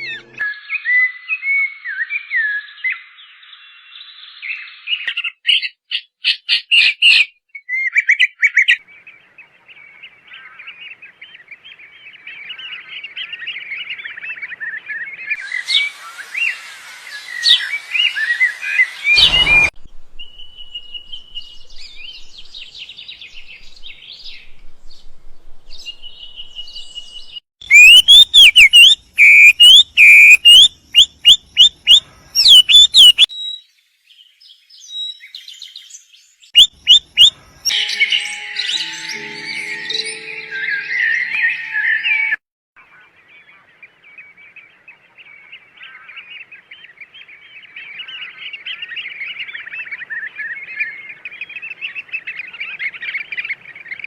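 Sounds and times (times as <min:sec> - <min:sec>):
songbirds chirping and singing: 0:07.9 - 0:19.7, 0:25.7 - 0:54.0.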